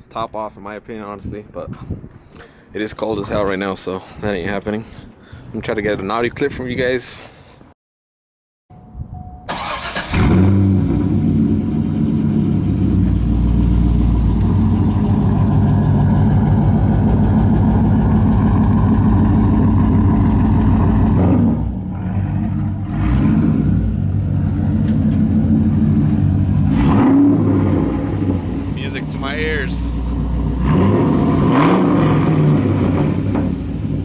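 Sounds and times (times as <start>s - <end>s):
car engine idling: 8.8s - 30.9s.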